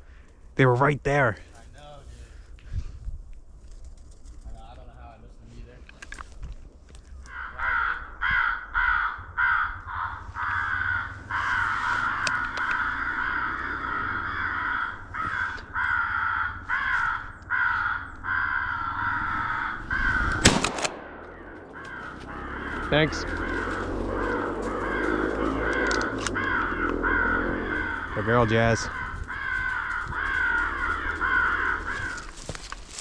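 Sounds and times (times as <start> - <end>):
rapid crow caws: 6.9 - 33.0
shotgun blast: 20.4 - 22.2.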